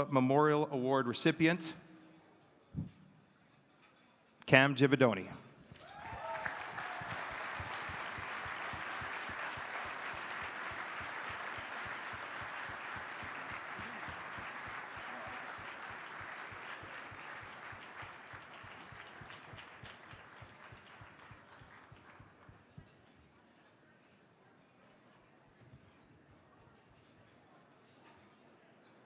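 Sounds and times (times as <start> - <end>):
audience applauding: 5.7 - 22.5.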